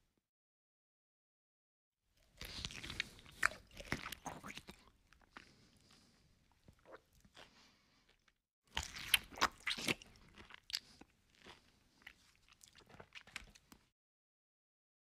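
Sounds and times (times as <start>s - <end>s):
crisp food crunching: 8.1s - 13.8s.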